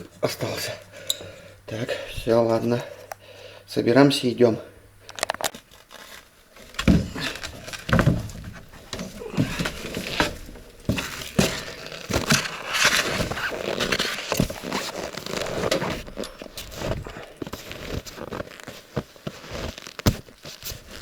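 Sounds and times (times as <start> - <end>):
rustling of clothing: 5.1 - 21.0
crunching knocks: 6.5 - 21.0.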